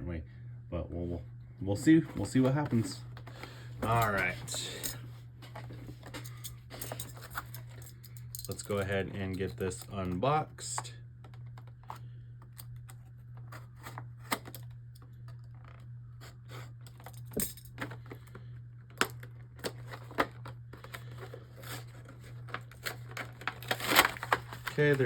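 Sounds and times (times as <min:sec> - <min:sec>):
steady low hum: 0:00.0 - 0:25.0
packaging rustling and clicking: 0:16.9 - 0:25.0.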